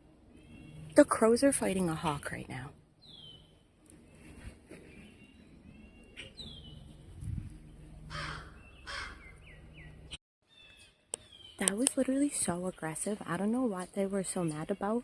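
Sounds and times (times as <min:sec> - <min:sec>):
high falling bird calls: 0:03.0 - 0:11.9
crows cawing harshly: 0:08.1 - 0:09.3.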